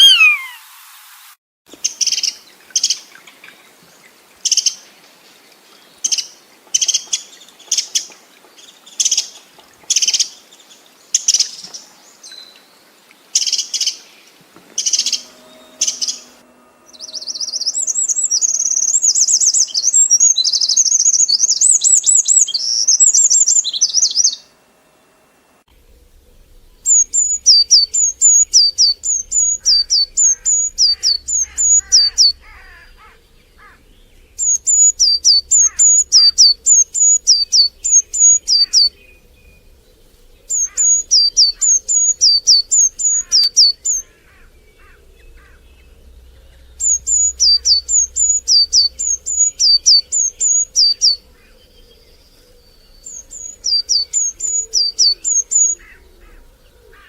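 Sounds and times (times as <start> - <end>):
rapid high bird chirping: 0.0 - 0.6, 14.8 - 24.4, 26.6 - 51.6, 52.2 - 56.0
songbird singing falling notes: 0.0 - 0.6, 26.6 - 39.8, 40.4 - 56.0.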